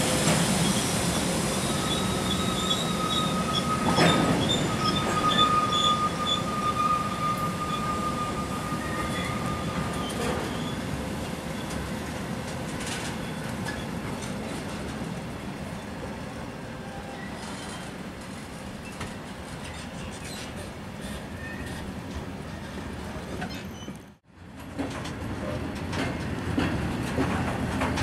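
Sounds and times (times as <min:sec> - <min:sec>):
freight train rolling rumble: 0:00.0 - 0:28.0
train wheels squealing: 0:00.6 - 0:11.8, 0:13.0 - 0:14.6, 0:16.8 - 0:18.0, 0:18.8 - 0:21.8, 0:23.4 - 0:24.1.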